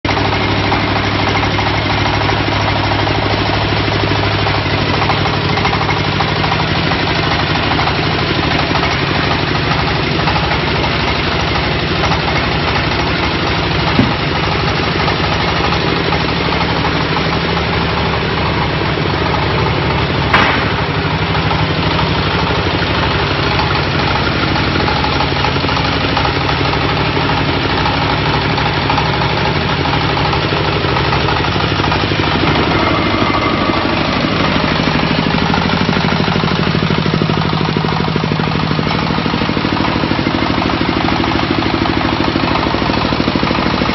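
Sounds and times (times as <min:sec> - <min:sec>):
diesel engine clattering: 0:00.0 - 0:43.9
sharp knocks: 0:13.9 - 0:14.7, 0:20.3 - 0:21.2.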